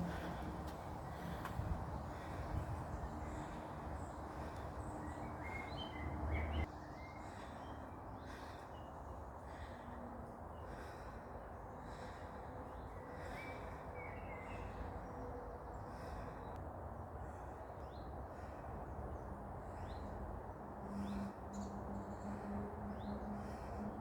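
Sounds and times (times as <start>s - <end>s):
low wind rumble on microphone: 0.0s - 8.6s
birds chirping faintly: 0.0s - 16.6s.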